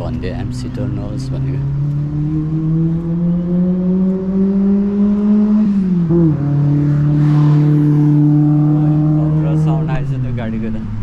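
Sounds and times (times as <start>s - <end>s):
vehicle engine accelerating: 0.0s - 11.0s.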